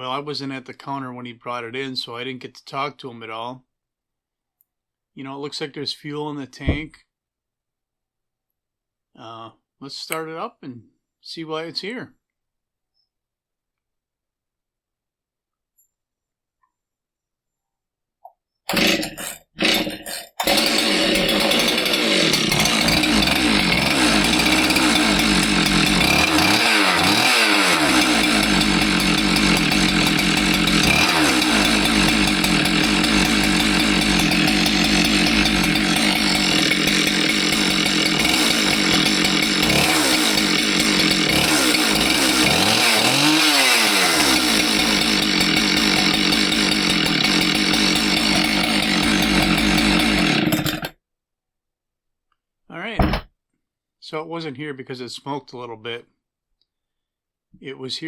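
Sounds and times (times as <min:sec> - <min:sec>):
chainsaw engine running loud: 0:18.7 - 0:50.9
chainsaw engine pull-started: 0:18.7 - 0:51.0.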